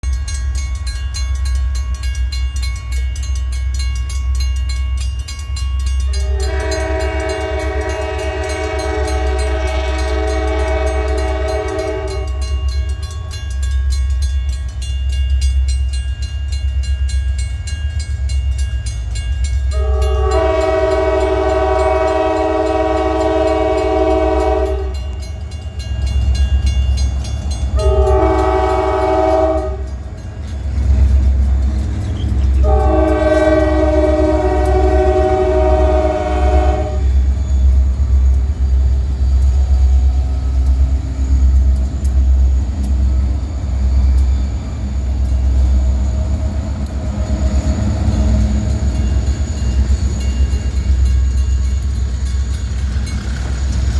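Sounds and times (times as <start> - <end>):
train rumbling past: 0.0 - 53.9
locomotive horn blasts: 6.1 - 12.6, 19.7 - 25.2, 27.7 - 30.0, 32.6 - 37.3.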